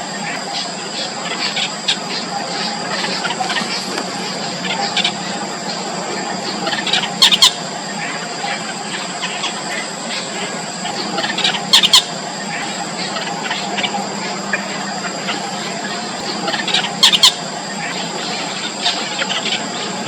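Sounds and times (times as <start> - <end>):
loud doubled squawks: 0.0 - 20.0
bird chicks squeaking: 0.1 - 20.0.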